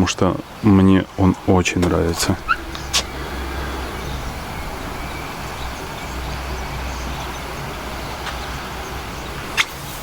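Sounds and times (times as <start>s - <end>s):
wind buffeting microphone: 0.0s - 10.0s
light hiss: 1.8s - 10.0s.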